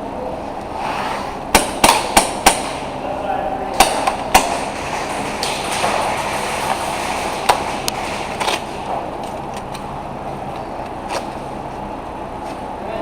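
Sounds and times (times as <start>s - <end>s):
steady background noise: 0.0s - 13.0s
airsoft guns firing: 1.5s - 2.9s, 3.8s - 6.1s.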